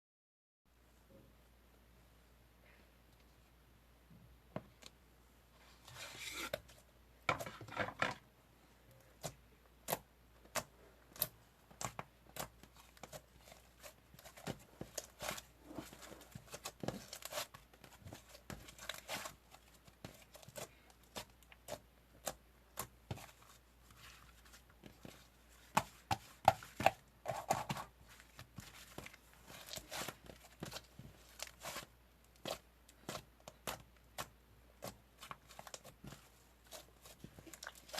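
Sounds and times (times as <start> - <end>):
rustling and scraping: 5.6 - 8.2, 12.9 - 20.8.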